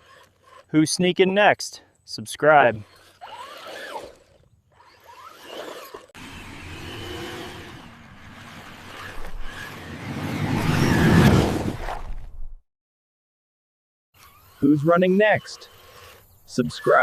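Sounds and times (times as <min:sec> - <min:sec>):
vehicle running: 0:06.2 - 0:12.2.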